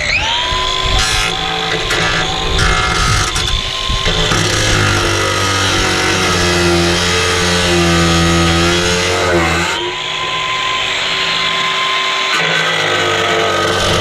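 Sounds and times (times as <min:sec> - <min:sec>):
angle grinder motor whining: 0:00.0 - 0:14.0.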